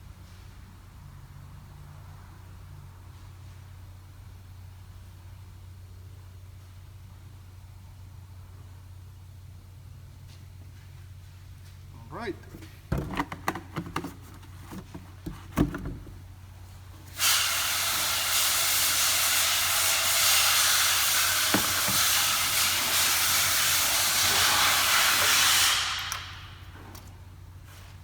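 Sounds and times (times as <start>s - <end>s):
loud steady hiss: 16.5s - 26.8s.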